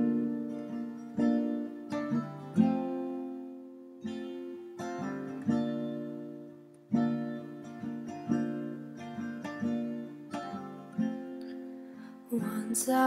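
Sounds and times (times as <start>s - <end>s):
acoustic guitar strummed chords: 0.0s - 13.0s.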